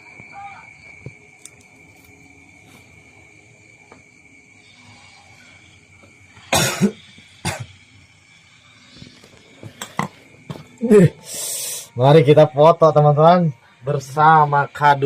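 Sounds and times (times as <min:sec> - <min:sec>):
high insect drone: 0:00.0 - 0:15.0
person coughing: 0:06.5 - 0:07.8.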